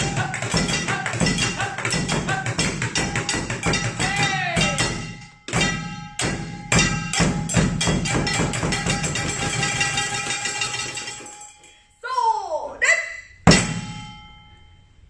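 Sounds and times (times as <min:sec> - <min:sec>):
percussion ensemble playing: 0:00.0 - 0:11.9, 0:13.4 - 0:14.2
steady ringing tone: 0:00.0 - 0:12.0, 0:13.5 - 0:15.0.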